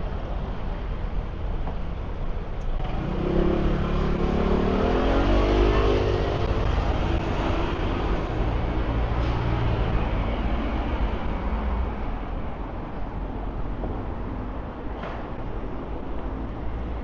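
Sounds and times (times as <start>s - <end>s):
low traffic rumble: 0.0s - 17.0s
vehicle accelerating: 2.7s - 11.4s.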